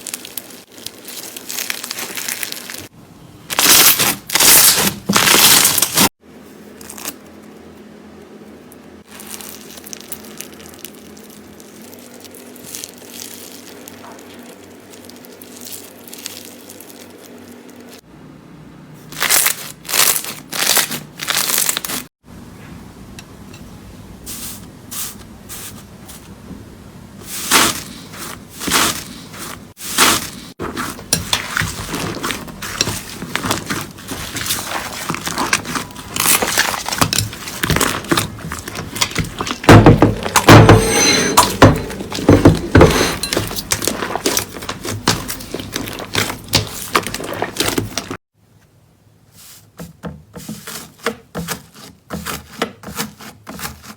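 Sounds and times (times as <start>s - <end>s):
slime crackling and crunching: 0.0s - 2.9s, 3.5s - 6.1s, 6.8s - 7.2s, 9.1s - 18.0s, 19.1s - 22.1s, 27.2s - 40.6s, 41.7s - 48.2s.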